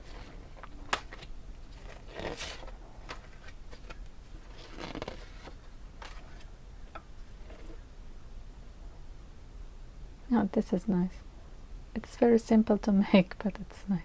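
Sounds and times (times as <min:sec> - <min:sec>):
paper rustling and scraping: 0:00.0 - 0:06.5.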